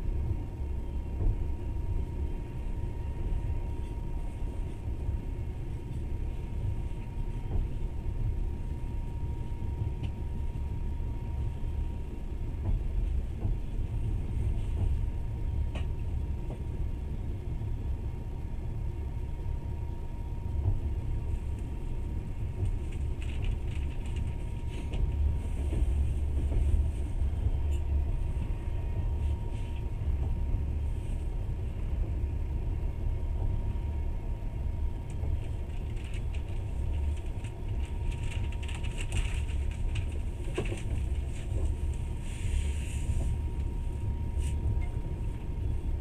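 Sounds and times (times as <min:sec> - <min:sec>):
train rumbling on rails: 0:00.0 - 0:46.0
light rattles and clicks: 0:20.7 - 0:27.9, 0:35.0 - 0:42.0.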